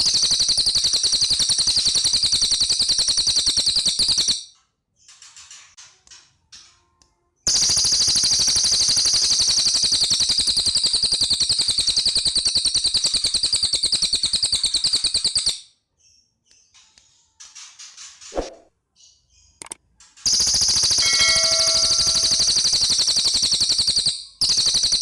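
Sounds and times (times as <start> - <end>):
bird chirps: 20.3 - 25.0
bird rattling trill: 20.3 - 25.0.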